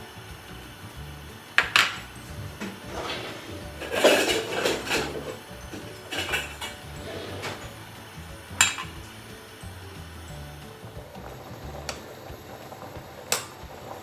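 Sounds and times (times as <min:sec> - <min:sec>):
faint background music: 0:00.0 - 0:14.0
metal utensils clattering: 0:01.6 - 0:02.0, 0:02.6 - 0:07.8, 0:08.5 - 0:09.5.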